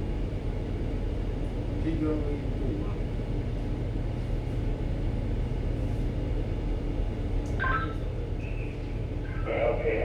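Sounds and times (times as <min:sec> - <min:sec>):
ship machinery hum: 0:07.1 - 0:10.0.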